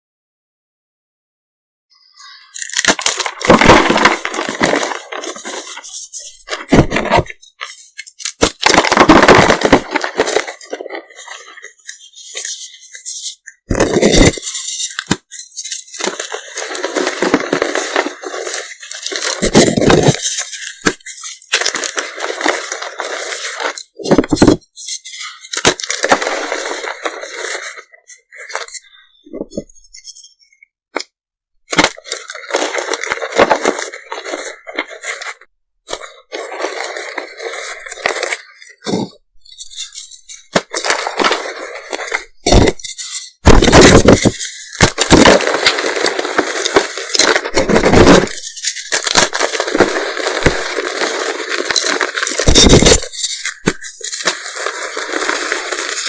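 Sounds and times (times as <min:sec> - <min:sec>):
chalk crunching and crackling: 0:02.4 - 0:30.3, 0:31.7 - 0:56.0.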